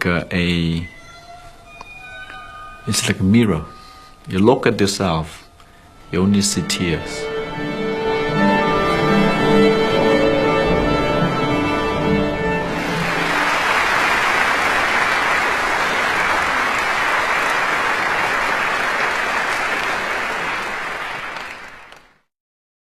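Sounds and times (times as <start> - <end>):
audience applauding: 12.7 - 22.3.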